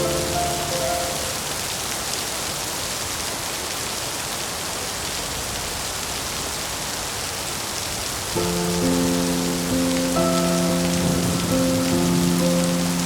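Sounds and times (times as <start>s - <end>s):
soft held musical notes: 0.0s - 1.5s
steady rain falling: 0.0s - 13.0s.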